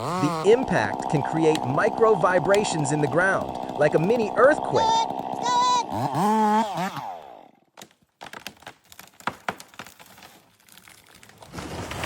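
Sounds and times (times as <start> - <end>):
sharp cracks and snaps: 7.7 - 12.0.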